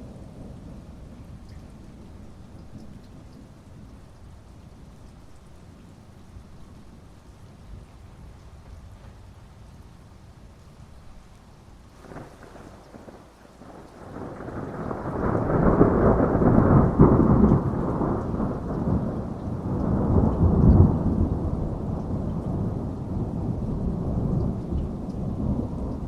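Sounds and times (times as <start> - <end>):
rain hissing: 0.0 - 26.0
deep rumble of thunder: 12.0 - 26.0.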